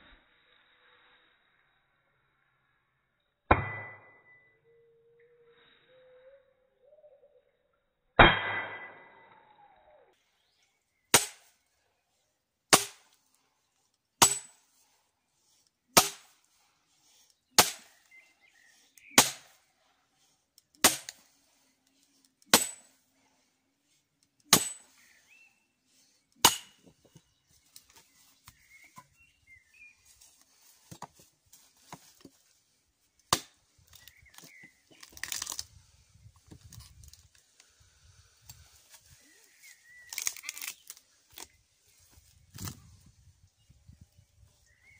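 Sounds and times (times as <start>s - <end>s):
hammer striking nail: 17.6s - 17.8s, 19.2s - 19.4s.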